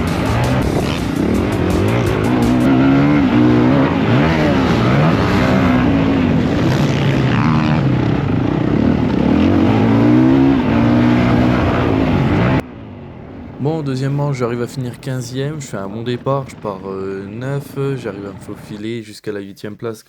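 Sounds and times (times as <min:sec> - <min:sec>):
motocross bike engine revving: 0:00.0 - 0:12.6.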